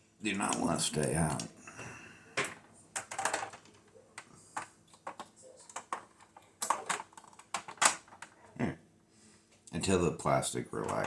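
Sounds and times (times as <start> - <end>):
plastic toy parts clicking: 2.4 - 8.4, 10.8 - 11.0.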